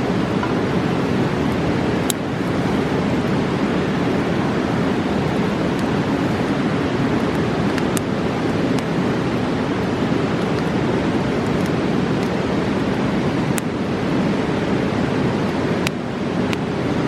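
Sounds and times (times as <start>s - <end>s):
campfire popping: 0.0s - 6.1s
river rushing: 0.0s - 17.0s.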